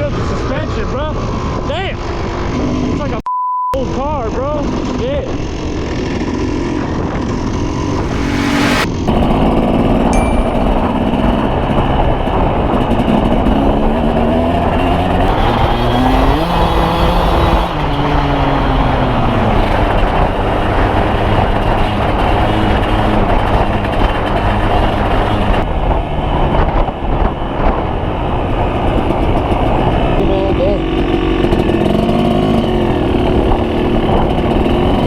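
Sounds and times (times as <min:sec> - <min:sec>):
dirt bike engine running: 0:14.9 - 0:21.8.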